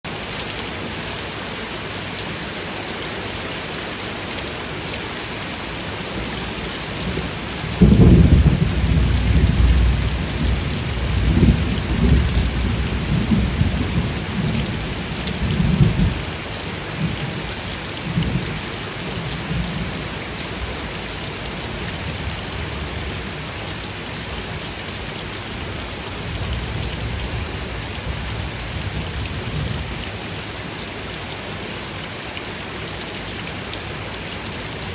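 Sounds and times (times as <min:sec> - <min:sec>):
rain hissing: 0:00.1 - 0:34.9
thunder rolling: 0:07.1 - 0:14.8.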